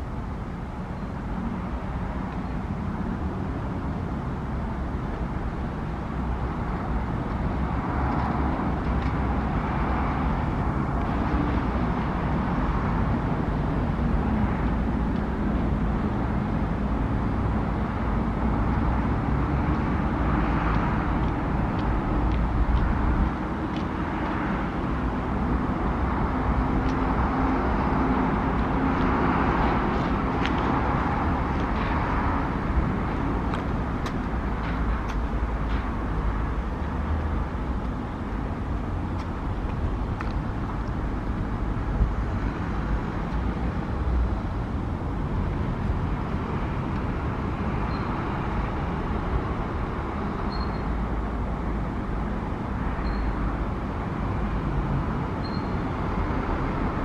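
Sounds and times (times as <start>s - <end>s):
distant road traffic: 0.0s - 57.0s.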